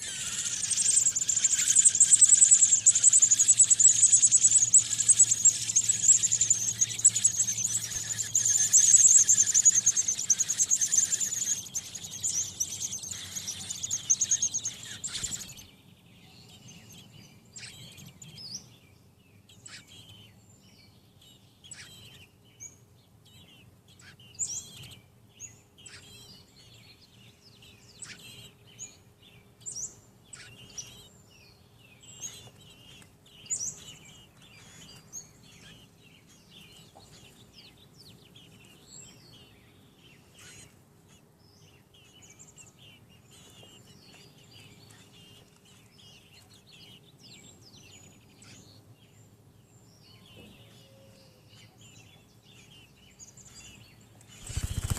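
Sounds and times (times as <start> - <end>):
faint chirps: 0.0 - 15.7, 52.6 - 54.9
nestlings peeping: 0.0 - 18.7, 23.3 - 49.4, 50.1 - 54.9.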